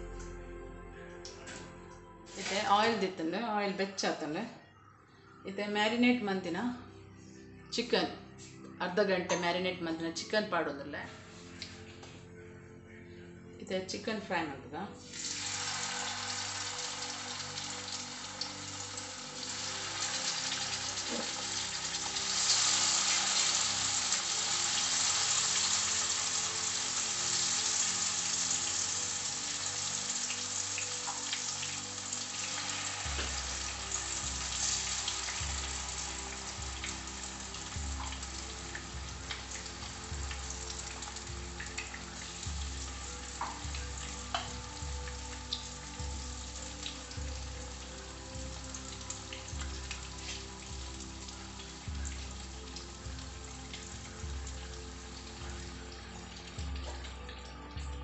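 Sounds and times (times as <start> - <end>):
chicken sizzling in a frying pan: 2.3 - 2.7, 15.1 - 48.2.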